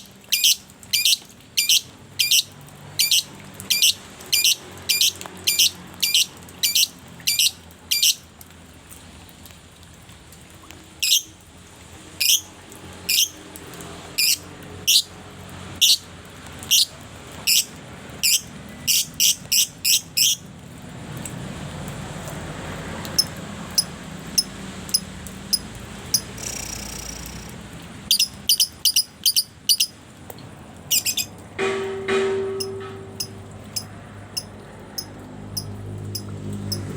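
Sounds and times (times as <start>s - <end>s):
steady background noise: 0.0s - 36.9s
songbird high chirps: 0.3s - 8.2s, 11.0s - 11.3s, 15.8s - 16.0s, 28.1s - 30.0s, 30.9s - 31.3s.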